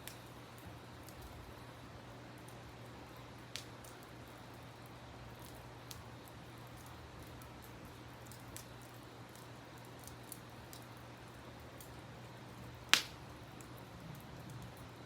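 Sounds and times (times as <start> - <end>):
campfire crackling: 0.0 - 15.0
loud pop of burning wood: 12.9 - 13.3.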